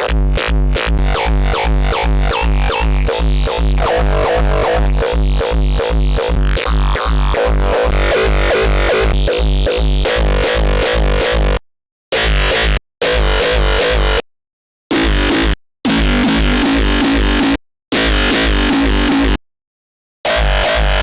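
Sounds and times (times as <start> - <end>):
distorted kick drum: 0.0 - 11.6.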